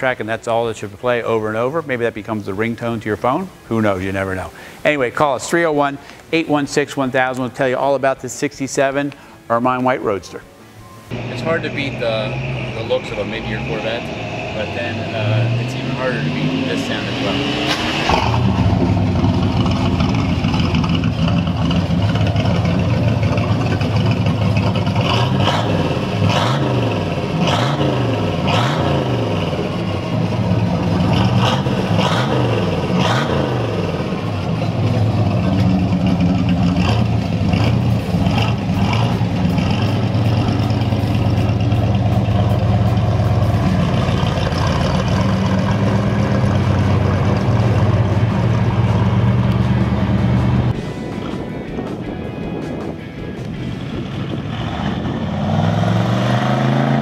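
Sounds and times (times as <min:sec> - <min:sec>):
car engine revving: 0:11.1 - 0:52.1, 0:53.6 - 0:57.0.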